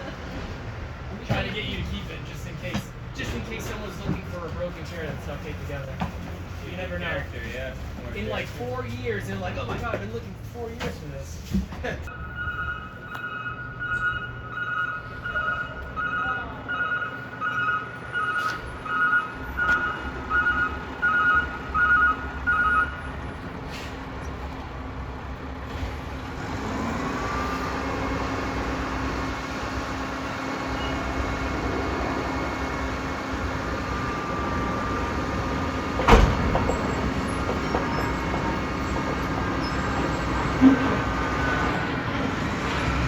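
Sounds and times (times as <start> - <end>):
diesel engine running: 11.8 - 43.0
truck backup alarm beeping: 12.1 - 23.5, 26.5 - 41.9.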